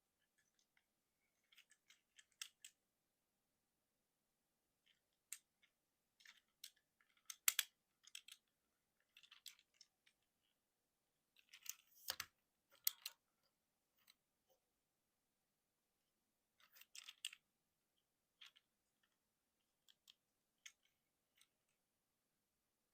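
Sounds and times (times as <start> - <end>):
plastic parts clicking and snapping: 1.4 - 2.8, 4.9 - 8.5, 11.4 - 13.2, 16.6 - 17.4.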